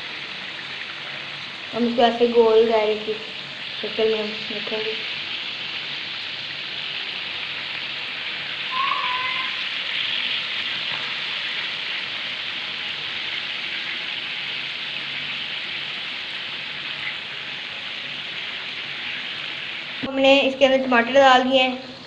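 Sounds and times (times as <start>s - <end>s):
chicken sizzling in hot oil: 0.0s - 22.0s
short squeak: 8.7s - 9.6s.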